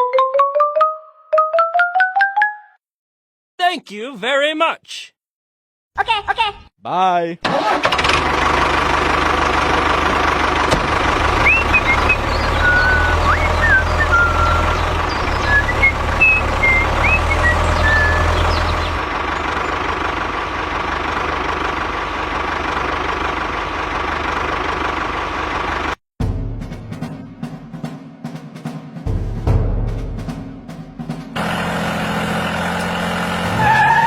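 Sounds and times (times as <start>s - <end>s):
small engine running: 7.5s - 26.0s, 31.4s - 33.7s.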